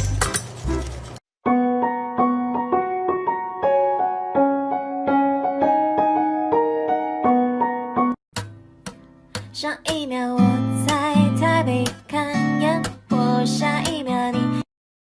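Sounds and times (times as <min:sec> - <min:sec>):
gentle piano tune: 0:00.0 - 0:08.2.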